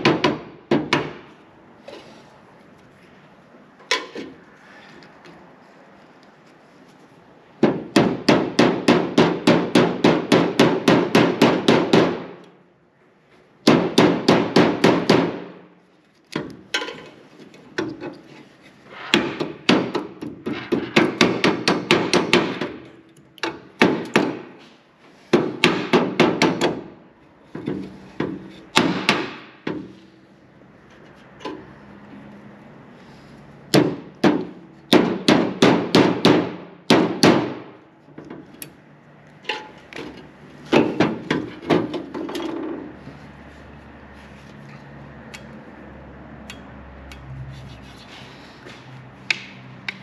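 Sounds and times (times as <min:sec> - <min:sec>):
hand hammer striking: 0:19.1 - 0:22.8, 0:25.3 - 0:26.9, 0:27.6 - 0:29.9.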